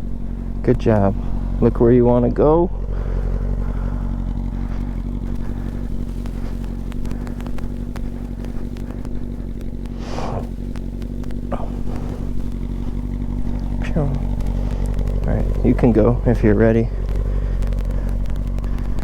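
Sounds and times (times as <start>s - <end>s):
faint clicks: 0.0s - 1.8s, 2.7s - 19.0s
motorcycle engine idling: 0.0s - 19.0s.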